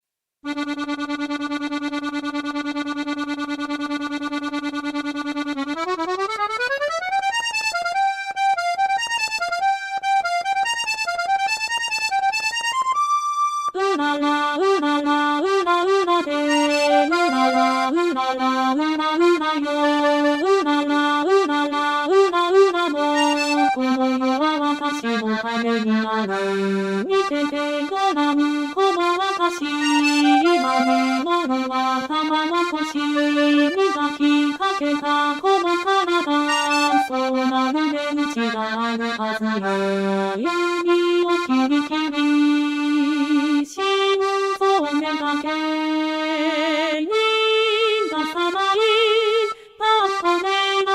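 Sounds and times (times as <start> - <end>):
accordion playing: 0.4 - 50.9.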